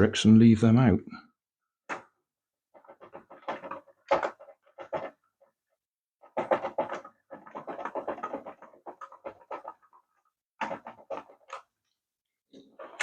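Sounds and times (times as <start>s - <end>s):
plastic parts clicking and rattling: 1.9s - 13.0s.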